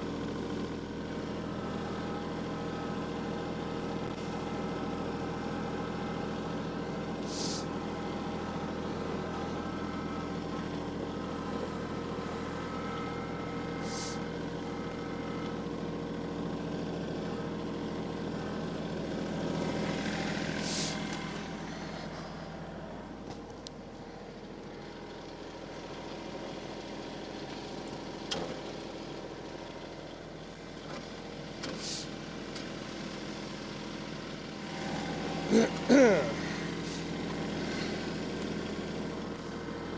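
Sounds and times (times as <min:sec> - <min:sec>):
engine running: 0:00.0 - 0:39.9
short hissing sounds: 0:07.3 - 0:07.6, 0:13.9 - 0:14.2.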